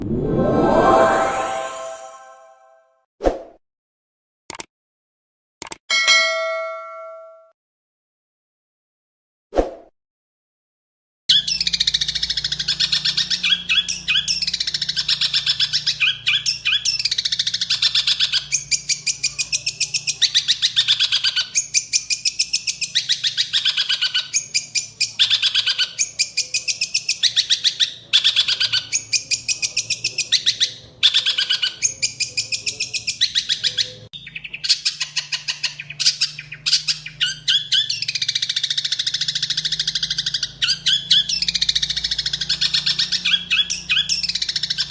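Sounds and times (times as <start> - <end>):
bird chattering song: 11.3 - 44.9.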